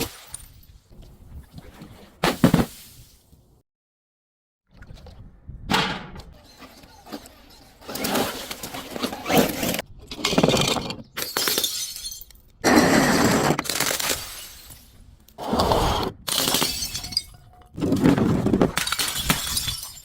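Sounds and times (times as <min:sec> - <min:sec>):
glass breaking and shattering: 0:11.1 - 0:12.6, 0:13.6 - 0:15.0, 0:16.3 - 0:17.8, 0:18.6 - 0:20.0.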